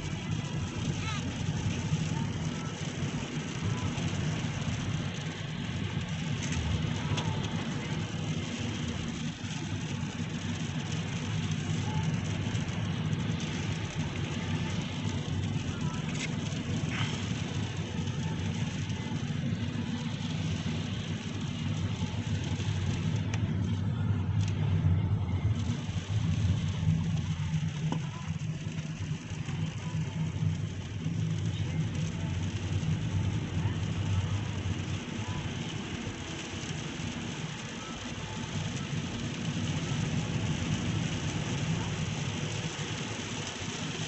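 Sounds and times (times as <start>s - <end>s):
car cabin hum: 6.4s - 35.4s.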